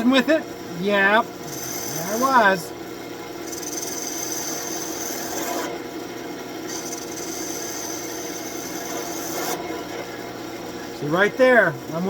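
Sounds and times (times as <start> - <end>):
wood lathe humming: 0.0 - 12.0
turning tool shaving wood: 1.4 - 2.7, 3.4 - 5.7, 6.7 - 9.6.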